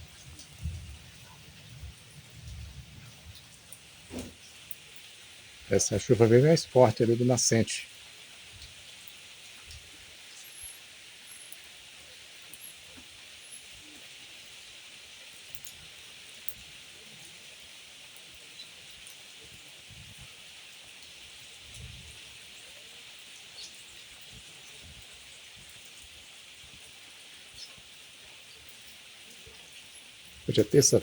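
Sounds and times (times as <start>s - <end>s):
rain falling: 0.0s - 31.0s
drip ticks: 4.7s - 5.1s, 8.6s - 10.7s, 15.5s - 16.7s.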